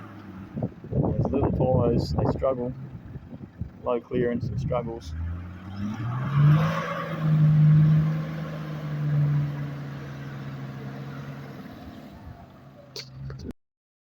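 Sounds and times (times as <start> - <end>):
engine at high revs: 4.1 - 13.4.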